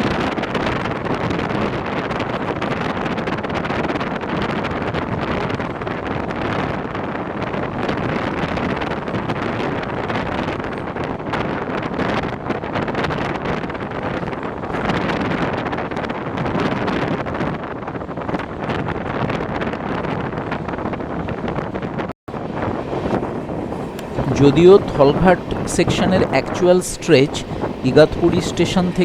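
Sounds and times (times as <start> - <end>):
wind on microphone: 0.0 - 29.0
passenger train running: 20.4 - 29.0.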